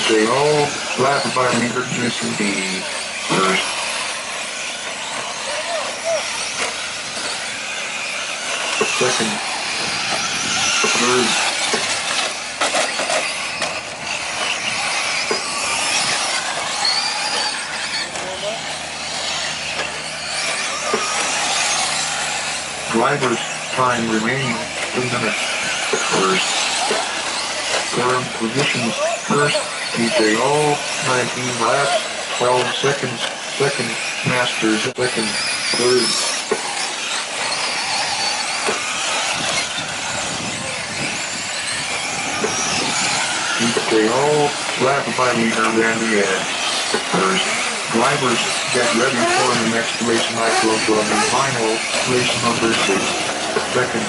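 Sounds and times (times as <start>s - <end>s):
faint rising motor whine: 0.0s - 54.0s
sharp clacks of trucks landing: 19.2s - 22.6s.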